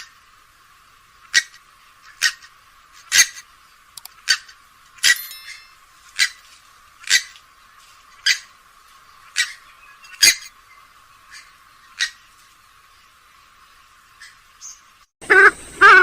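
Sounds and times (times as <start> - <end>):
swamphen calling: 14.1 - 16.0.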